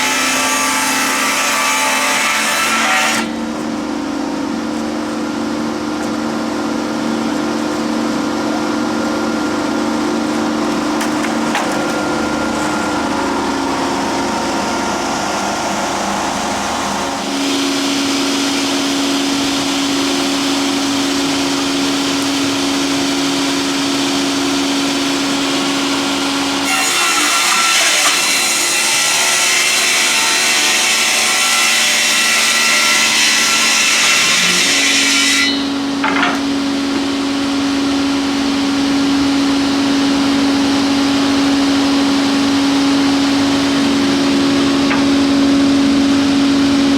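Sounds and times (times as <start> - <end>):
circular saw blades humming: 0.0 - 46.9
saw ripping board with hiss: 26.6 - 35.8.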